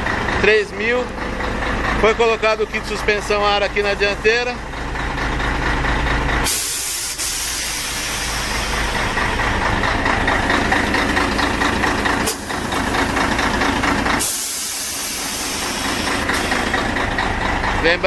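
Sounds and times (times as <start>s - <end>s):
truck engine idling: 0.0s - 18.0s
compressed air hissing: 6.5s - 9.0s, 14.2s - 17.0s.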